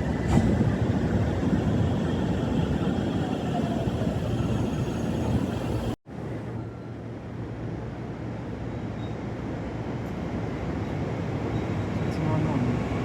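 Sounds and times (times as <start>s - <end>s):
train rumbling: 0.0s - 6.0s.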